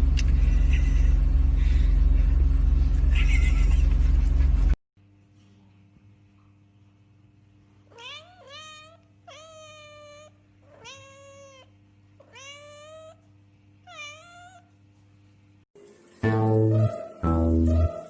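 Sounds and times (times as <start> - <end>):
low hum: 0.0 - 7.6
cat meowing: 7.9 - 13.2, 13.9 - 14.7.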